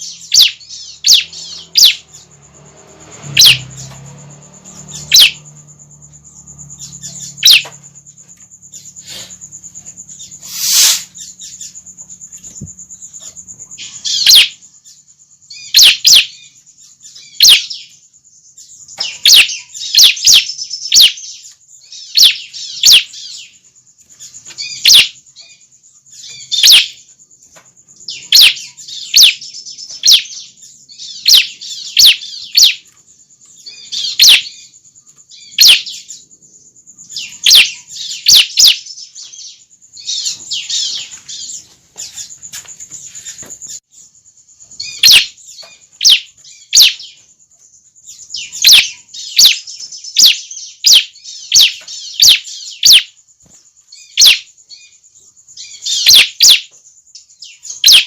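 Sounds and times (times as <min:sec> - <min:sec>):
bird chirping: 0:00.0 - 0:58.0
steady high hiss: 0:08.8 - 0:11.4.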